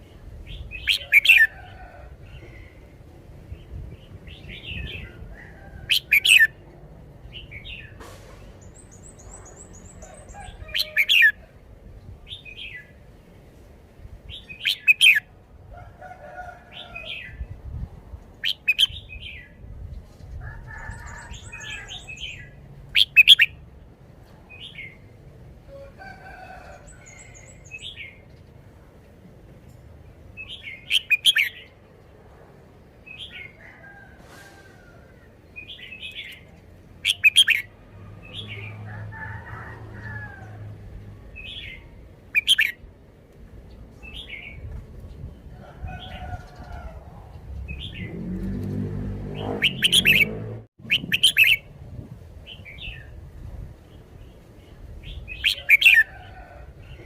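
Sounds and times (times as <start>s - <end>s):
bird singing whistled phrases: 50.9s - 51.6s.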